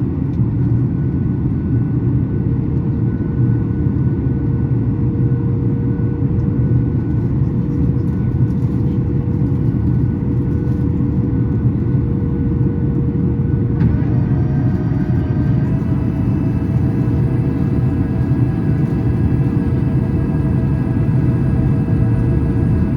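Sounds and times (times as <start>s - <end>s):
airliner cabin rumble: 0.0s - 22.9s
steady higher tones: 13.8s - 22.9s.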